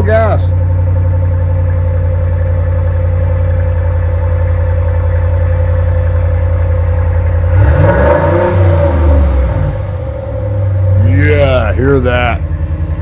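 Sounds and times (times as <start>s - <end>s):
car engine idling: 0.0s - 13.0s
engine revving: 6.6s - 13.0s.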